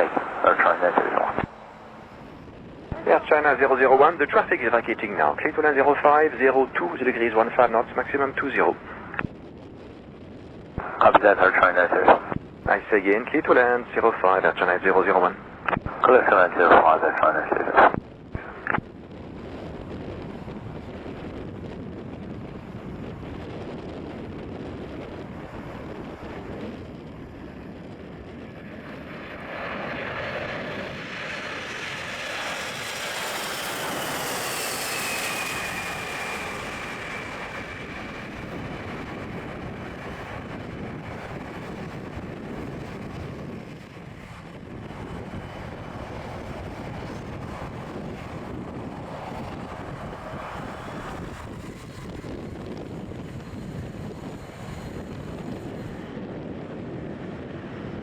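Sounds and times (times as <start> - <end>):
high engine whine: 0.0 - 58.0
jet engines rumbling: 0.0 - 58.0.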